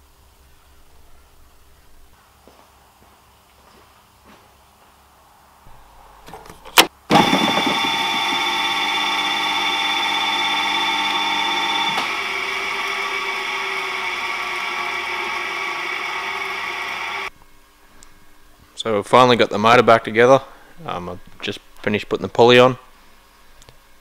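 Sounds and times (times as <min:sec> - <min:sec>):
electric motor humming and whining: 0:07.1 - 0:17.3.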